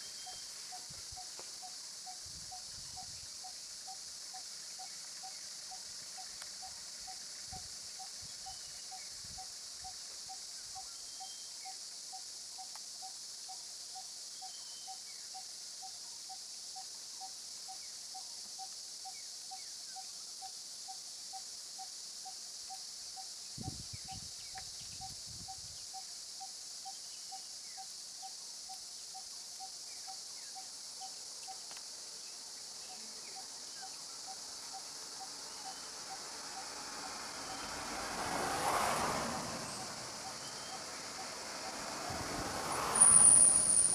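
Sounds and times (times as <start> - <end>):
insect high buzz: 24.8 - 43.9.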